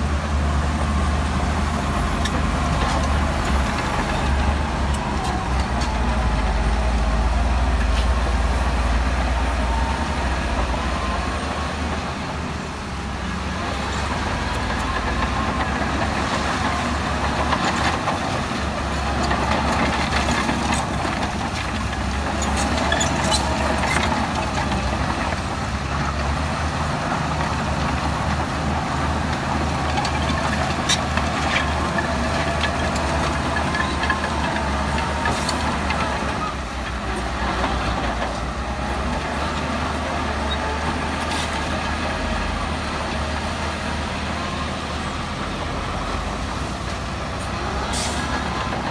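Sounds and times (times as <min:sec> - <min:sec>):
heavy diesel machinery rumbling: 0:00.0 - 0:48.9.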